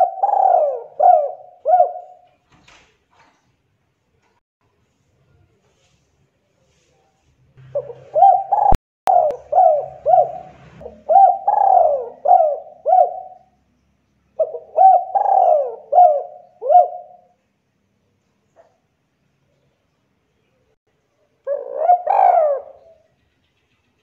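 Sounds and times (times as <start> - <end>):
dove cooing: 0.0 - 2.3, 7.6 - 13.6, 14.4 - 17.4, 21.4 - 23.0.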